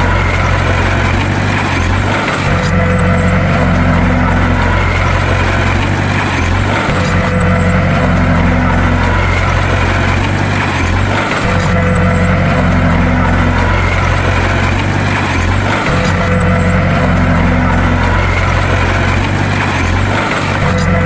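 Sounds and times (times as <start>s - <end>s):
bulldozer diesel engine droning: 0.0s - 21.0s.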